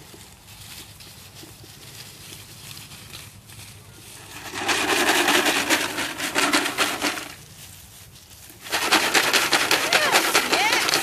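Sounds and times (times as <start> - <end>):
rapid rattling clatter: 4.2 - 7.4, 8.6 - 11.0.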